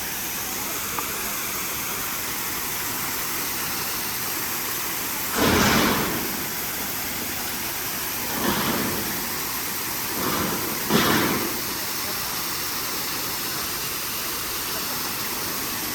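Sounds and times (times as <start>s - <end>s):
waterfall roaring: 0.0s - 15.9s.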